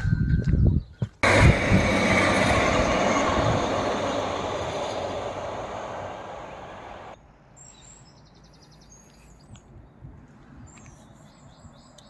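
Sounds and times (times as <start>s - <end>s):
faint low rumble: 1.2s - 7.2s
passing train: 1.2s - 7.2s.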